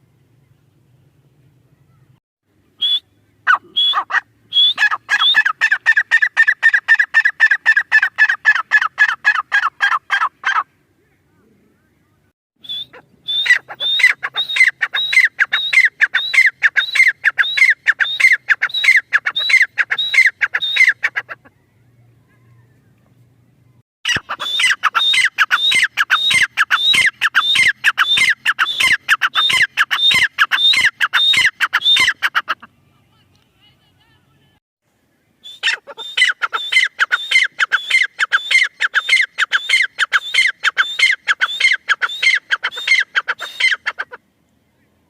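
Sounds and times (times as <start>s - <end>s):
francolin calling: 12.6s - 21.9s, 24.1s - 33.1s, 35.4s - 44.2s.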